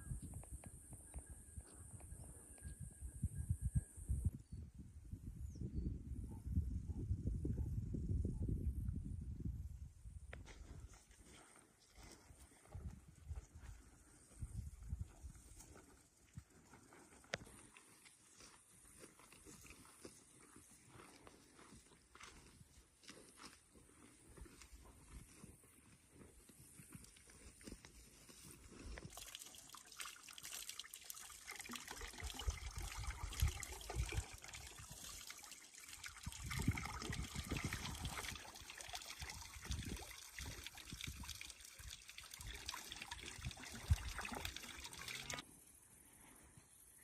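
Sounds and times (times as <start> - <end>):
water trickling: 29.0 - 45.4.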